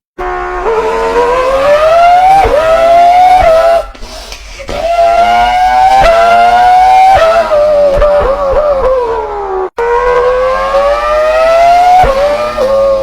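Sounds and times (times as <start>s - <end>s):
man imitating car engine: 4.6s - 13.0s.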